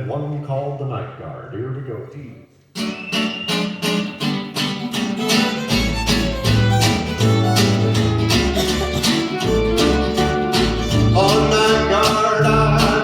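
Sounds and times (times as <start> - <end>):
acoustic guitar strumming: 2.7 - 13.0
fiddle playing: 4.0 - 13.0
deep bass notes: 6.0 - 13.0.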